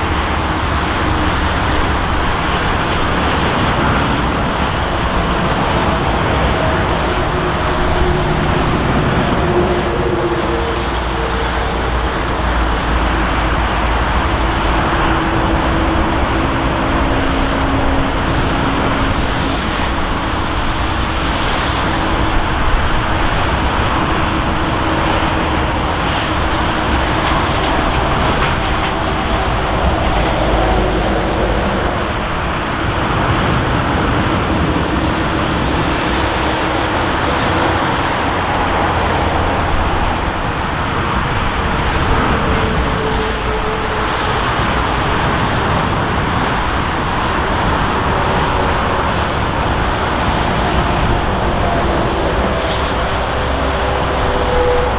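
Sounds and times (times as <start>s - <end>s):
jet engine rush: 0.0s - 54.9s
faint steady tones: 9.6s - 34.4s.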